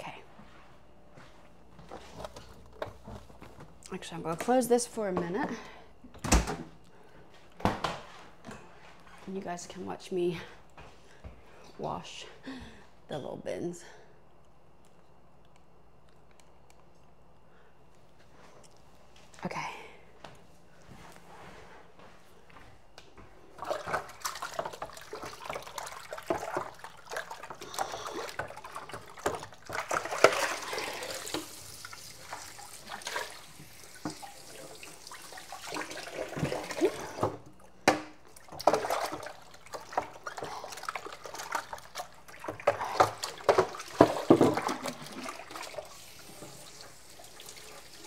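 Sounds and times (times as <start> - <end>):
water running and splashing: 23.6 - 37.3, 38.4 - 48.0
plastic bins knocking and clattering: 42.6 - 45.1.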